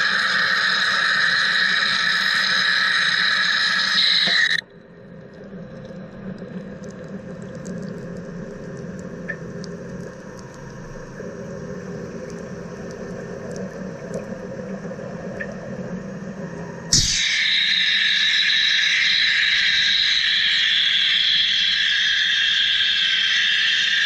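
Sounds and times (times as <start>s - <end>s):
loud steady hiss: 0.0s - 4.6s, 16.6s - 24.0s.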